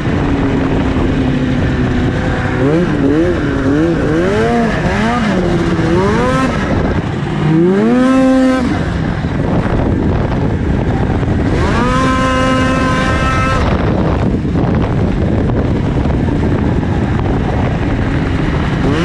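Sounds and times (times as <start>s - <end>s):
snowmobile engine revving: 0.0s - 19.0s.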